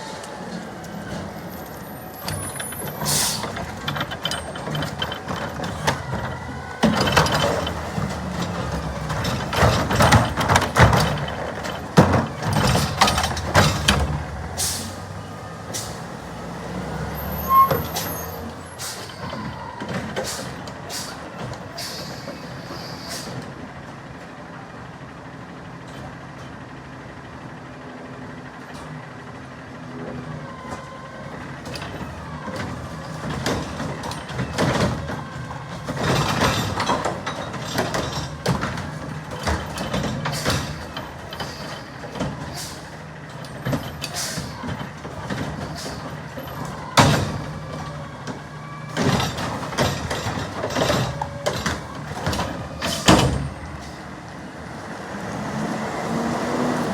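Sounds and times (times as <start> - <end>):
garbage truck engine running: 0.0 - 56.9
clattering bangs: 2.1 - 15.2, 31.6 - 54.0
air brake hiss: 3.0 - 3.6, 14.6 - 15.1, 20.2 - 21.2, 21.8 - 23.4, 41.4 - 43.0, 44.0 - 44.6.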